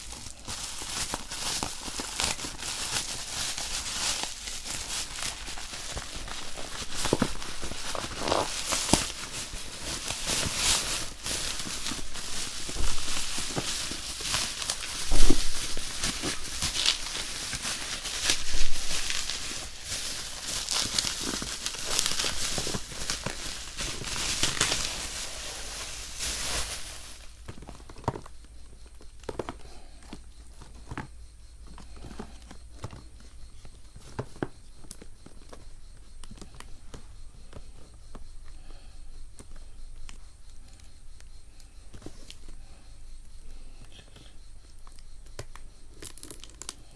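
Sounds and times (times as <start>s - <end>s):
packaging crinkling and tearing: 0.0s - 29.6s.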